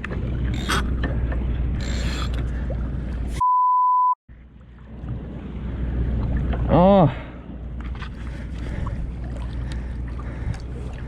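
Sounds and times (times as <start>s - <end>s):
wind: 0.0s - 3.5s, 4.3s - 11.0s
censor bleep: 3.4s - 4.2s.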